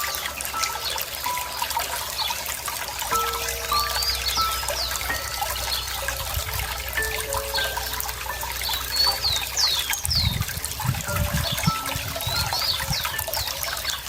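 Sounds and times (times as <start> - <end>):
water trickling and gurgling: 0.0 - 14.0
small bird chirping: 3.1 - 14.0.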